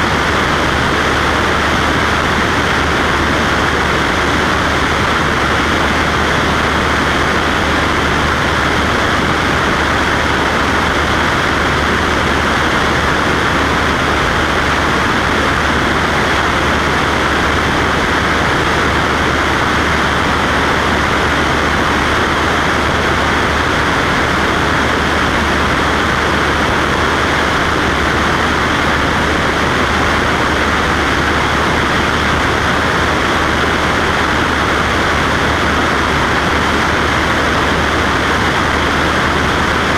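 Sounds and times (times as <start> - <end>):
propeller plane engine drone: 0.0 - 39.9.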